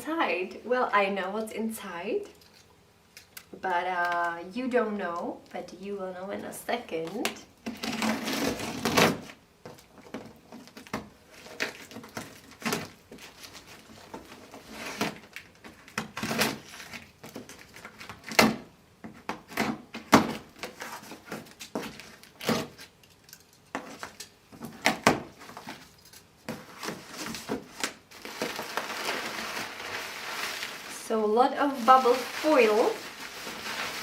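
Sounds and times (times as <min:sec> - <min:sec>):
cardboard box being opened: 0:26.5 - 0:31.0, 0:31.7 - 0:34.0.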